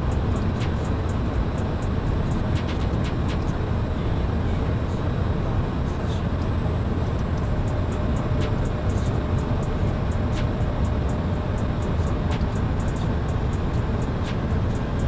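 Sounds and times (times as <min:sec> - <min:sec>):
aircraft engine and airflow noise: 0:00.0 - 0:15.0.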